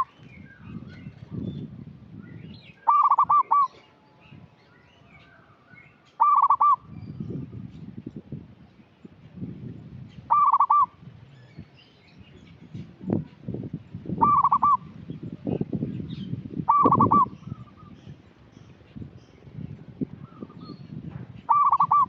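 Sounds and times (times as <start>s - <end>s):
dove trilled cooing: 2.8s - 4.0s, 6.2s - 7.2s, 10.3s - 11.0s, 14.2s - 15.6s, 16.6s - 18.0s, 21.4s - 22.0s.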